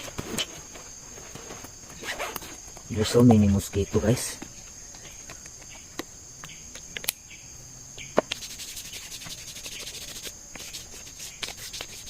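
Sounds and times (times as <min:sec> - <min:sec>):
insect chorus trilling: 0:00.0 - 0:12.0.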